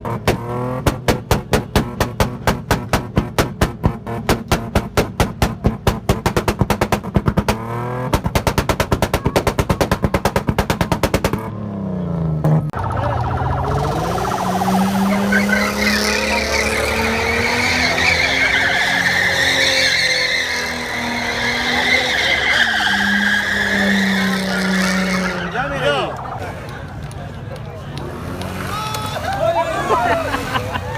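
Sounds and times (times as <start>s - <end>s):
engine drone: 11.2s - 29.0s
falling tone: 12.7s - 26.6s.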